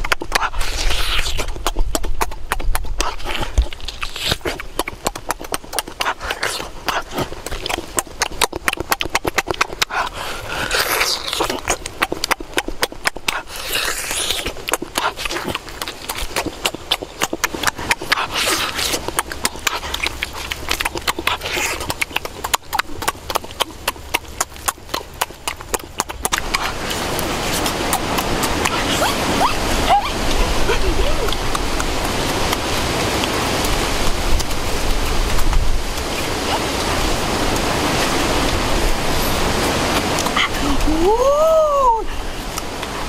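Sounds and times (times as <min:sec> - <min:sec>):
person chewing with mouth open: 0:00.0 - 0:43.0.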